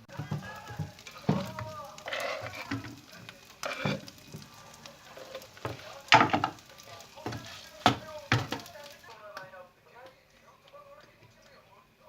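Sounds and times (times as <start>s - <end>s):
food sizzling in a frying pan: 0.0s - 9.6s
utensil knocking against pan: 0.1s - 4.5s, 5.3s - 8.8s.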